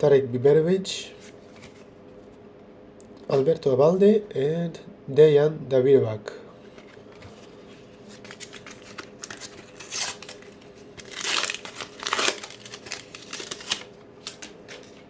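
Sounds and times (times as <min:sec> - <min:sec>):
wrapper tearing and crinkling: 0:08.1 - 0:15.0.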